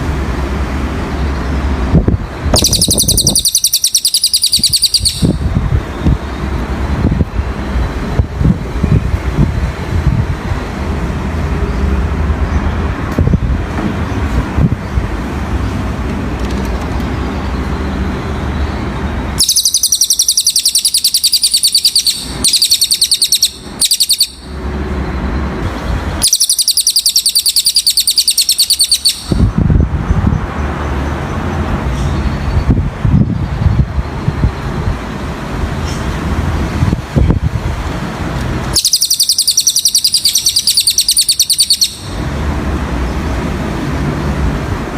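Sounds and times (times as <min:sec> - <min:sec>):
bird high-pitched trills: 0:02.5 - 0:05.4, 0:19.4 - 0:25.4, 0:26.2 - 0:29.4, 0:38.8 - 0:42.2.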